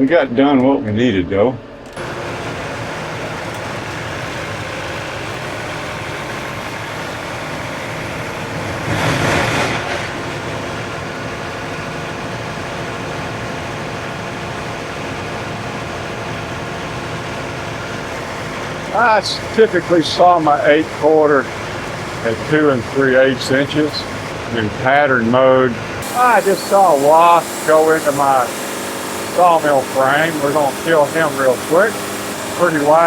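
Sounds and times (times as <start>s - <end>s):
band sawmill engine running: 1.8s - 33.0s.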